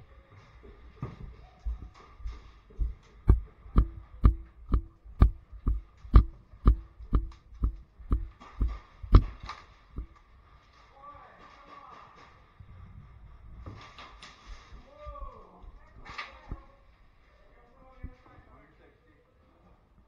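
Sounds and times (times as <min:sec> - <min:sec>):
footsteps: 0:00.0 - 0:10.2.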